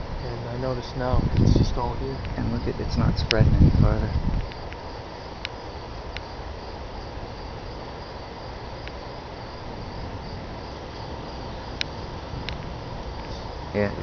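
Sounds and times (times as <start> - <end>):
low even rumble: 0.0 - 4.7
crickets chirping: 0.0 - 14.0
faint clicks: 11.8 - 13.4.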